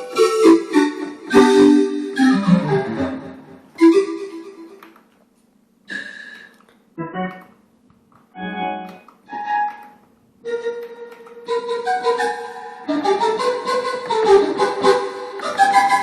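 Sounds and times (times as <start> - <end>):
synthesizer chords: 0.0 - 4.9.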